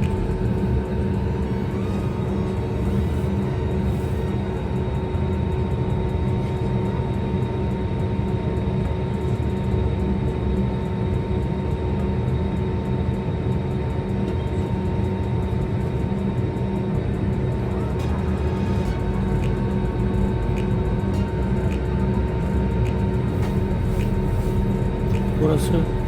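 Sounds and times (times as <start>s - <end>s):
jet engine rumble: 0.0s - 26.0s
steady engine whine: 0.0s - 26.0s.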